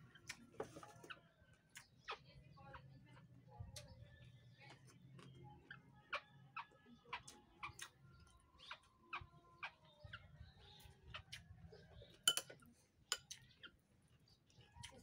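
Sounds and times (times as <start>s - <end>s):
spoon clinking glass bowl: 12.2s - 13.3s.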